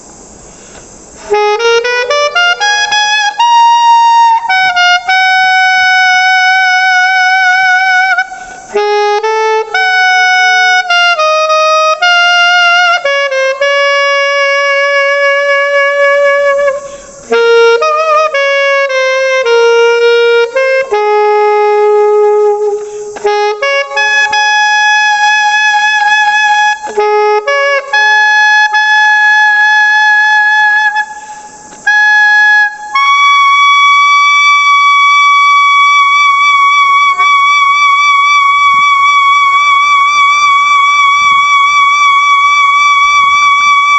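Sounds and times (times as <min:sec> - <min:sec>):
alto saxophone melody: 0:00.0 - 0:43.9.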